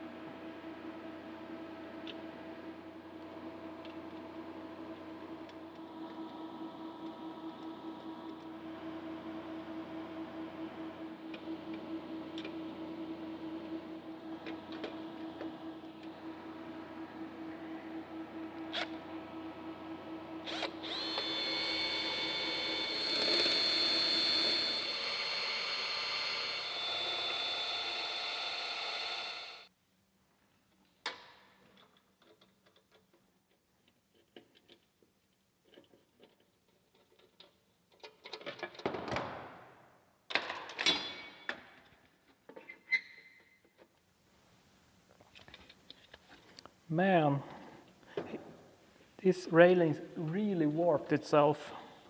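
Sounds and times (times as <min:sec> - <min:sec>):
electric drill whining: 0:10.4 - 0:29.7.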